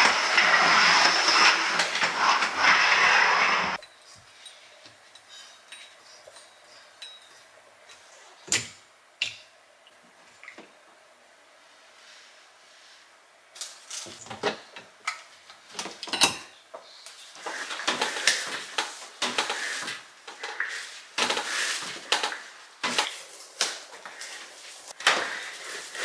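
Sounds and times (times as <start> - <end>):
rubbing or scraping: 0.0 - 3.8, 17.4 - 26.0.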